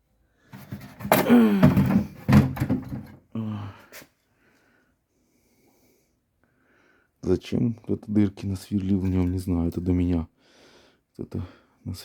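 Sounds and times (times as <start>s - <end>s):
washing machine parts clunking: 0.5s - 3.2s
man talking: 7.2s - 10.3s, 11.2s - 12.0s.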